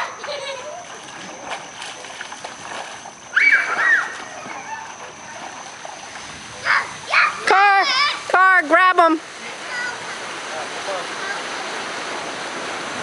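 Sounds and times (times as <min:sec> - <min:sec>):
water splashing: 0:00.0 - 0:13.0
hiss of moving water: 0:09.2 - 0:13.0.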